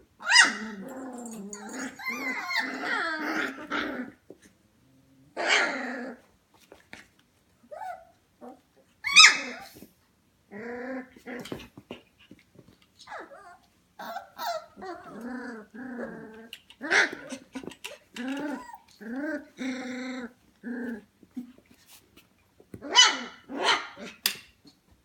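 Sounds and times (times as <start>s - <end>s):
puppies whining and yelping: 0.2s - 3.8s, 9.0s - 9.8s, 13.0s - 15.6s, 16.9s - 19.5s.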